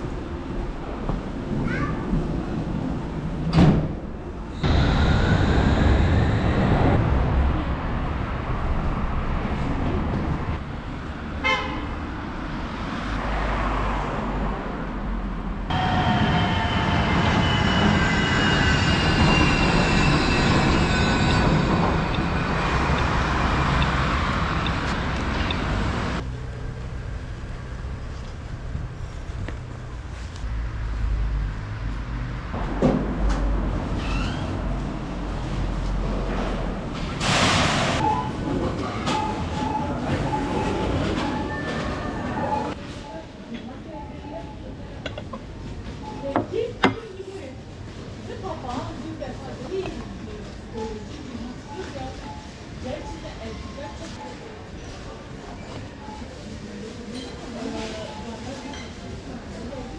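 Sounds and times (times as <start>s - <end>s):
urban ambience: 0.0s - 59.9s
train wheels squealing: 15.7s - 23.4s.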